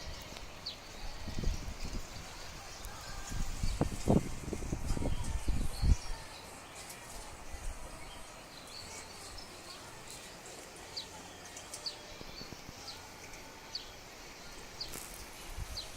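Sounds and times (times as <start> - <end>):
low outdoor background noise: 0.0 - 15.9
small bird chirping: 8.1 - 15.9.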